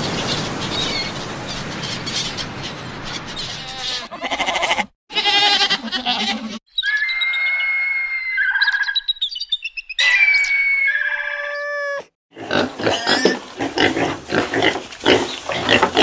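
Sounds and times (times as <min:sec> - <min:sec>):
whistle-like animal calls: 0:06.7 - 0:12.1.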